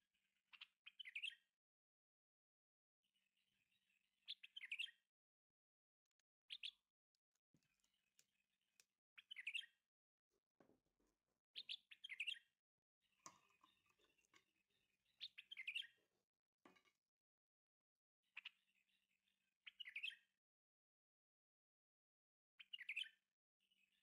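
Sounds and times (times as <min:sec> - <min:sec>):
faint bird chirping: 0:00.4 - 0:01.5, 0:03.1 - 0:05.1, 0:06.2 - 0:06.9, 0:07.6 - 0:09.8, 0:11.5 - 0:16.1, 0:18.3 - 0:20.3, 0:22.6 - 0:24.0.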